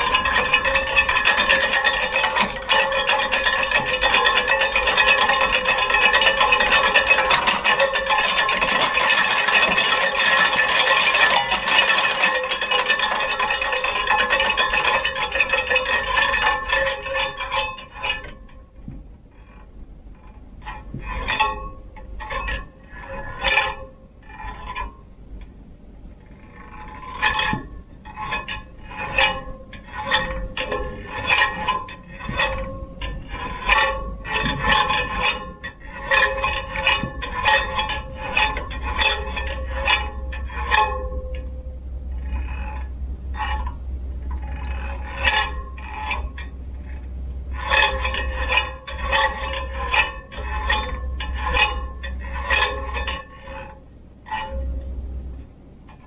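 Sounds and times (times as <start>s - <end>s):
bicycle clinking and rattling: 0.0s - 18.4s.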